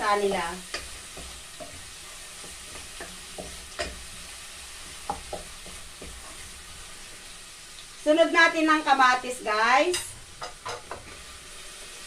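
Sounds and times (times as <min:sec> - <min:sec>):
onion sizzling in oil: 0:00.0 - 0:12.0
utensil scraping and tapping pan: 0:00.7 - 0:04.1, 0:04.8 - 0:06.5, 0:09.9 - 0:11.2.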